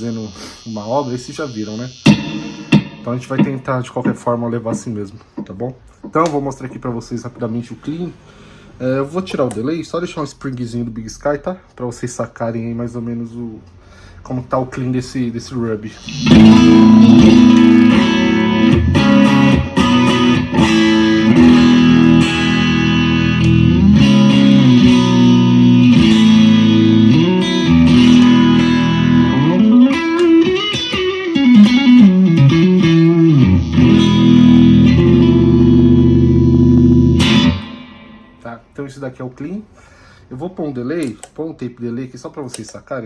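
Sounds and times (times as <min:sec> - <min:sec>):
clean electric guitar: 0:00.0 - 0:04.3, 0:16.0 - 0:38.4.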